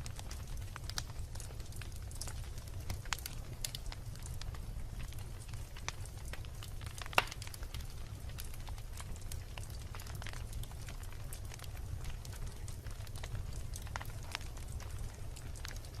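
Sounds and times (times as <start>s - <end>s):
fire crackling: 0.0s - 16.0s
low fire rumble: 0.0s - 16.0s
log popping: 6.9s - 7.6s.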